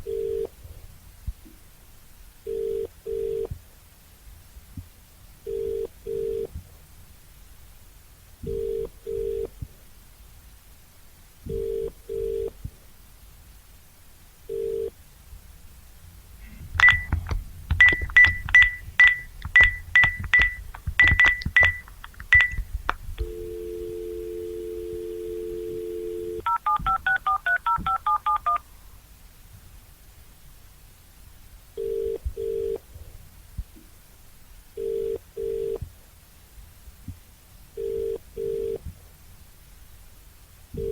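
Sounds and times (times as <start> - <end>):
telephone ringback double beeps: 16.8 - 17.2, 17.8 - 22.6, 23.2 - 28.6
touch-tone digits dialed: 16.8 - 22.6, 23.2 - 28.6
clattering clicks with high beeps: 16.8 - 23.3, 26.4 - 28.6
telephone dial tone: 17.8 - 22.6, 23.2 - 28.6.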